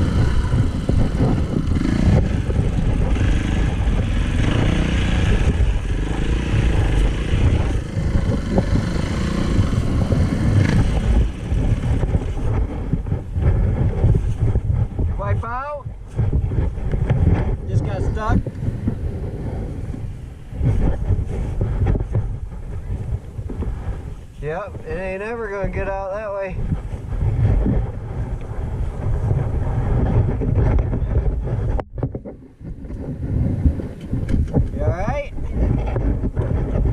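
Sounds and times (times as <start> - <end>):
dirt bike engine revving: 0.0 - 13.8
wind buffeting microphone: 0.0 - 36.9.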